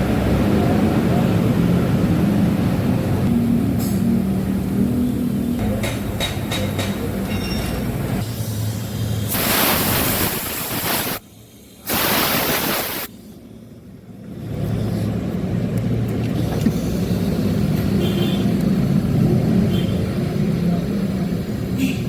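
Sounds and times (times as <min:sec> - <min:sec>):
loud hissing bursts: 0:08.2 - 0:13.5.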